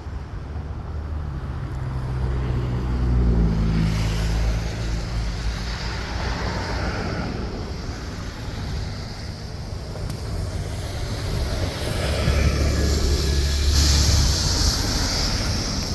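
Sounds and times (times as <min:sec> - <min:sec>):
passing motor vehicle engine hum: 0:00.0 - 0:15.9
rushing hiss: 0:03.9 - 0:15.9.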